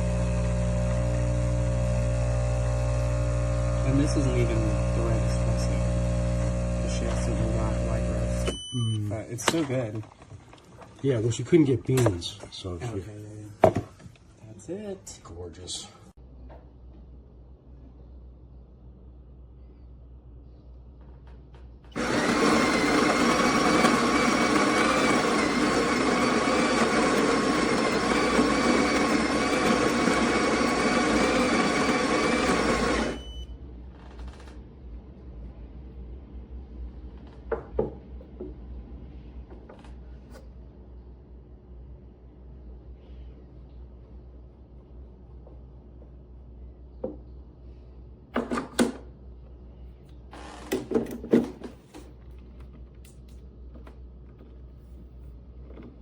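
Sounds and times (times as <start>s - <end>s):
espresso machine buzzing: 0.0s - 8.5s, 21.9s - 33.2s.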